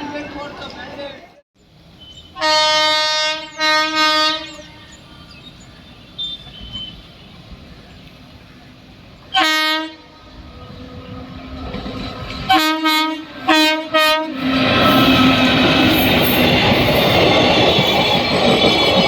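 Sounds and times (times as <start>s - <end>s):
train low rumble: 0.0s - 19.0s
train horn blasts: 2.1s - 5.0s, 9.3s - 11.2s, 12.5s - 16.1s.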